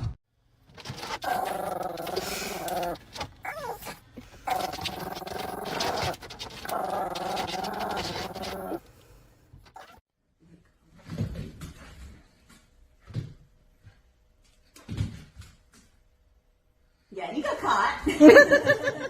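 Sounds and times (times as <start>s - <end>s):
dog howling: 1.0s - 8.8s.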